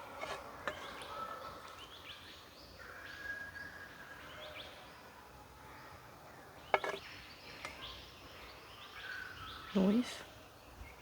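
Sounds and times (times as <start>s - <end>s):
birds chirping and whistling: 1.8s - 4.6s.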